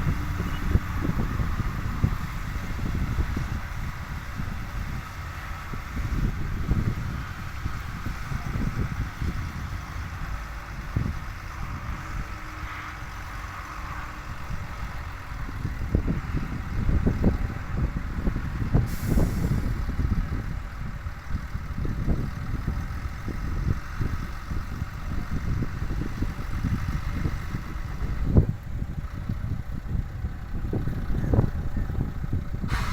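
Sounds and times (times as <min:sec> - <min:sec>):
diesel truck engine rumbling: 0:00.0 - 0:32.9
air brake hiss: 0:18.9 - 0:19.8, 0:32.7 - 0:32.9.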